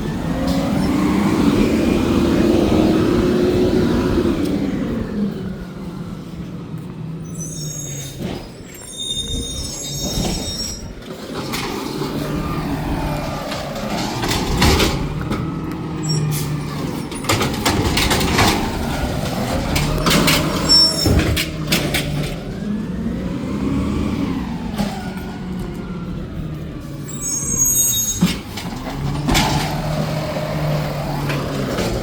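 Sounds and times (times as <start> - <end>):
garbage truck engine hum: 0.0 - 32.0
brief high squeals: 7.3 - 11.0, 27.1 - 28.3
metal clanks and bangs: 8.0 - 22.7, 28.1 - 32.0.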